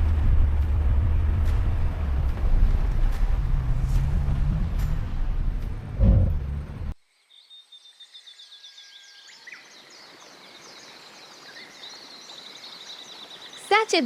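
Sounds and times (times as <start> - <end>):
loud thump: 0.0 - 6.9
vehicle engine rumbling: 0.0 - 7.0.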